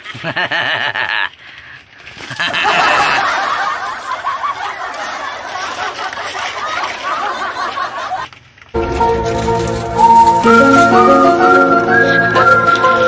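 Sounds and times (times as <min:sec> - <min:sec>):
snickering laughter: 0:00.0 - 0:01.4, 0:02.2 - 0:08.4.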